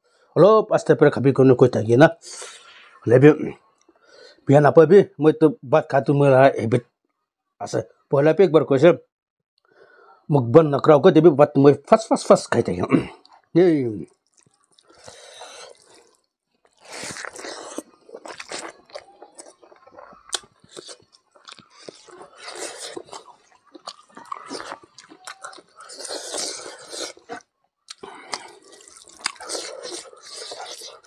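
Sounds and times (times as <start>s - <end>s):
person chewing food: 13.1s - 31.0s
mouth clicks: 16.8s - 31.0s.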